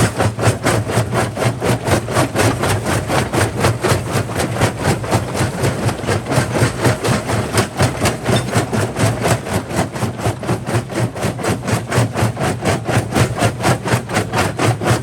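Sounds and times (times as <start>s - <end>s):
jaw crusher low hum: 0.0s - 15.0s.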